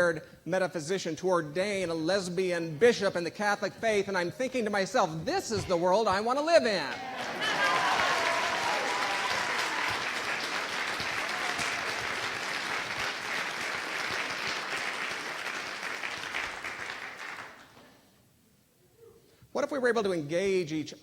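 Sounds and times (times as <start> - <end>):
congregation applauding: 6.9 - 17.8.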